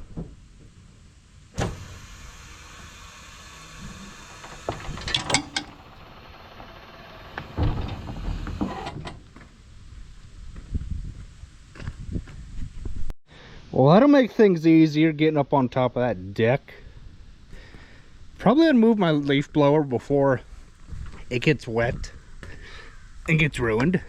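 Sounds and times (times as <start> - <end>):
metallic clunks and knocks: 5.0 - 6.0.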